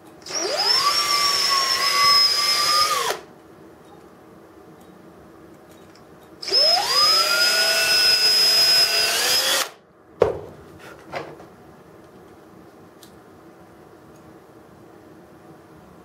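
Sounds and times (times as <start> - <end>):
power drill whining: 0.2 - 3.3, 6.4 - 9.8.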